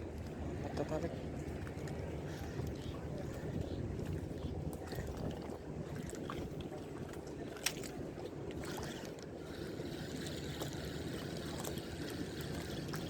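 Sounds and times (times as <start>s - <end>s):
wind and water rumble: 0.0s - 13.0s.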